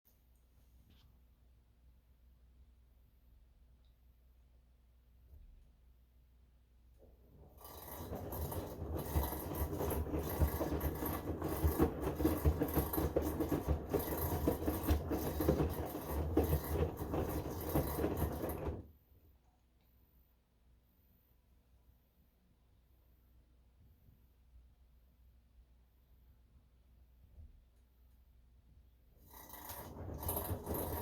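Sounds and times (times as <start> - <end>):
washing machine grinding: 7.3 - 18.9, 29.2 - 31.0.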